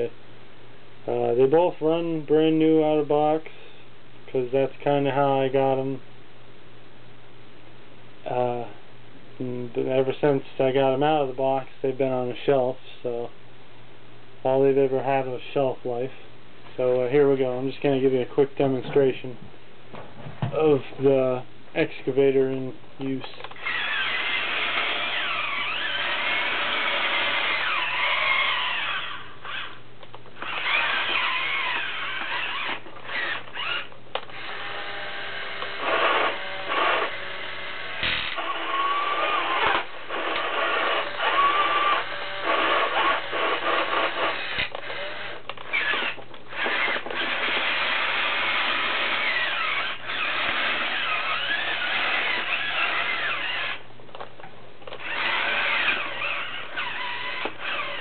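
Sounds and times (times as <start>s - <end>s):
toy electric motors whining: 23.5s - 29.8s, 30.4s - 53.9s, 54.9s - 58.0s.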